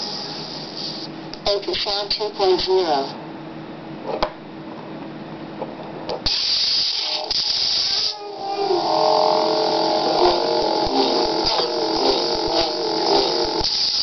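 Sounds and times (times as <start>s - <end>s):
loud hiss: 0.0s - 1.1s, 6.2s - 14.0s.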